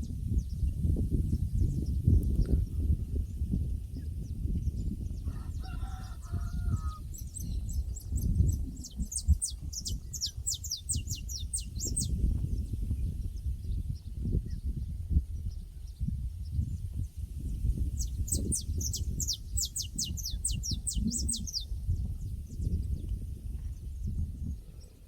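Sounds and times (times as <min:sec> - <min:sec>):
rooster crowing: 0:05.2 - 0:07.0
small bird chirping: 0:07.2 - 0:14.7, 0:17.6 - 0:23.2.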